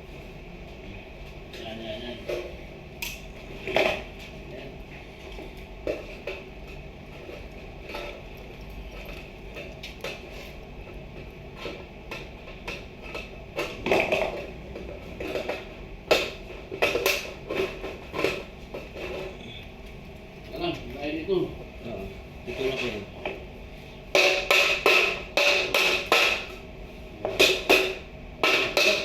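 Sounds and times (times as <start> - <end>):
hard objects knocking and clattering: 3.6 - 4.3, 5.3 - 19.4, 24.1 - 26.6, 27.2 - 29.0.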